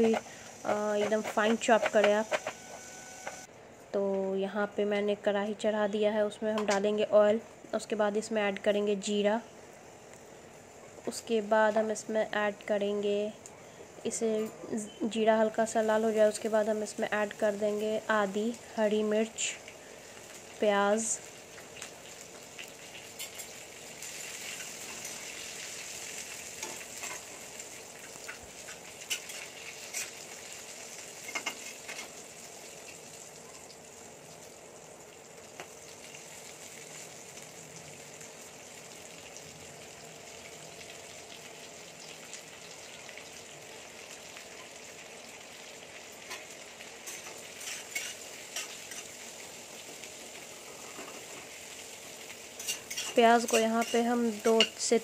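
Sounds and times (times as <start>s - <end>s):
onions sizzling in hot oil: 0.0s - 3.5s, 15.4s - 55.0s.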